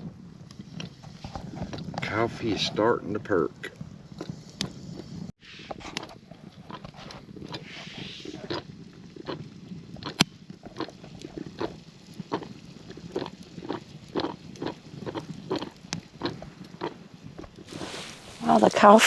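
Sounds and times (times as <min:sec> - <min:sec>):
coffee percolator perking: 0:17.7 - 0:19.0.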